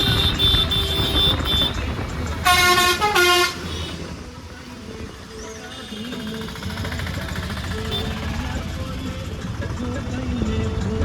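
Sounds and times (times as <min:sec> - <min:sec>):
vehicle horn honking: 0:00.0 - 0:04.1, 0:07.6 - 0:08.6
street traffic rumble: 0:00.0 - 0:11.0.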